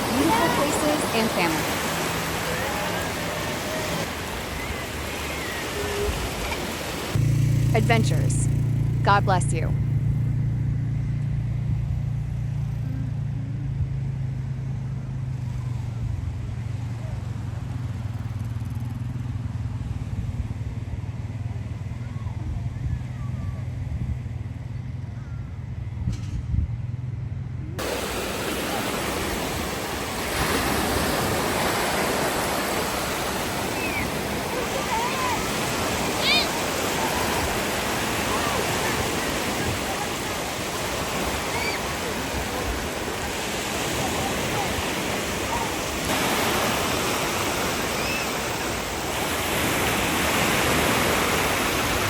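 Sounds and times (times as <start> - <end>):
surf washing onto beach: 0.0 - 8.2, 27.8 - 52.0.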